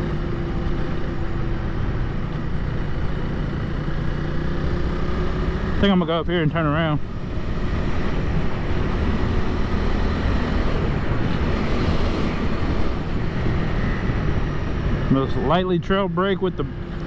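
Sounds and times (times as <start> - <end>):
motorcycle engine running: 0.0 - 17.0
wind rushing over microphone: 6.9 - 17.0.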